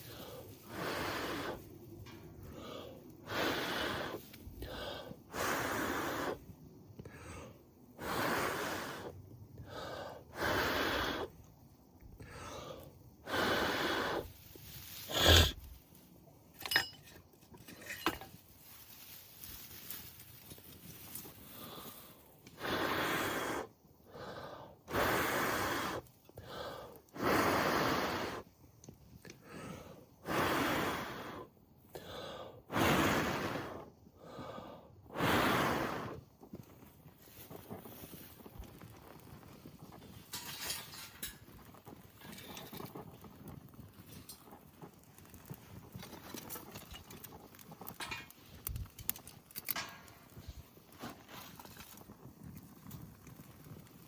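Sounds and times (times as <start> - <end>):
person blowing on tinder: 0.0 - 1.6, 3.2 - 4.2, 5.2 - 6.5, 10.3 - 11.3, 13.2 - 14.3, 15.0 - 15.7, 22.6 - 23.7, 24.8 - 26.0, 27.1 - 28.5, 32.7 - 33.9, 35.1 - 36.3
quick breaths drawn in: 0.0 - 15.8
wood fire crackling and popping: 0.0 - 27.9, 34.3 - 54.0.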